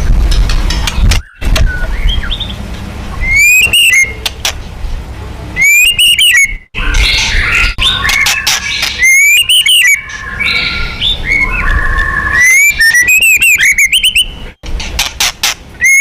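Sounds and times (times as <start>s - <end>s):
bird whistle and rattle song: 0.4s - 4.6s, 5.6s - 16.0s
soft bird whistles and chirps: 1.1s - 4.2s, 5.6s - 14.5s, 15.8s - 16.0s.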